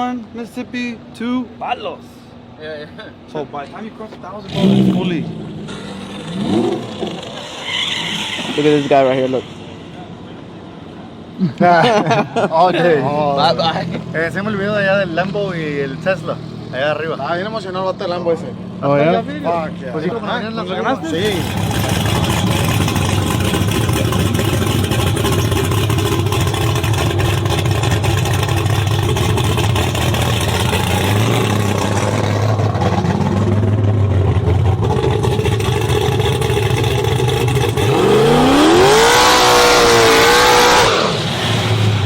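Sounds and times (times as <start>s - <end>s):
car engines rumbling: 0.0s - 42.0s
engine revving up: 4.4s - 10.0s, 21.0s - 42.0s.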